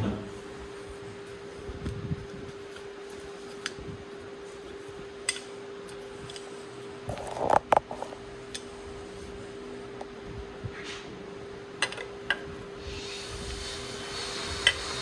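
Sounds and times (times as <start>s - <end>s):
steady hum: 0.0s - 15.0s
metal tools clattering: 11.8s - 12.5s.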